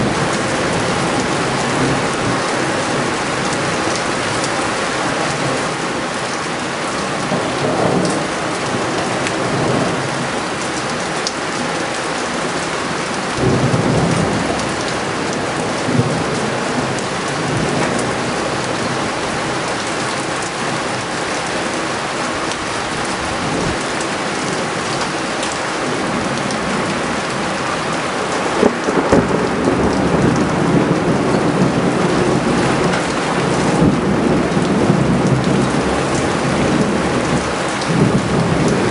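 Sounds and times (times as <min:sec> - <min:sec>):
thunder rumbling: 0:00.0 - 0:06.0, 0:13.4 - 0:21.3, 0:22.6 - 0:38.9
heavy rain pouring: 0:00.0 - 0:38.9.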